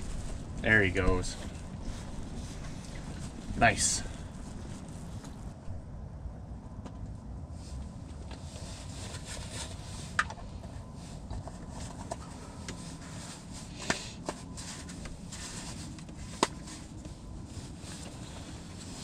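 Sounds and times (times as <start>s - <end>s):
wind rumbling against microphone: 0.0s - 13.7s.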